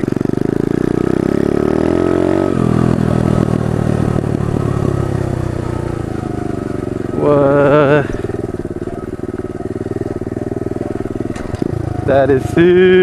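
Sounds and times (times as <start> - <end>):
pit bike engine revving: 0.0 - 13.0.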